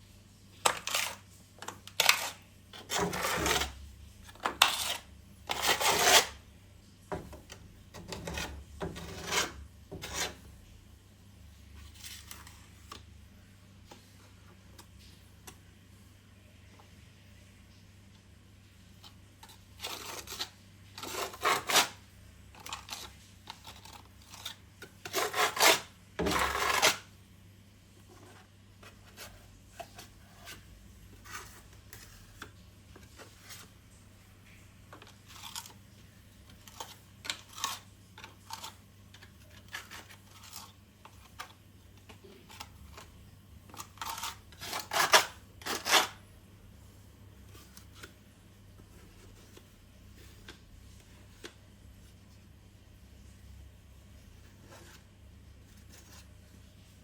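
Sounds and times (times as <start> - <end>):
scraping strokes: 4.4 - 6.4, 8.0 - 10.6, 22.6 - 27.1.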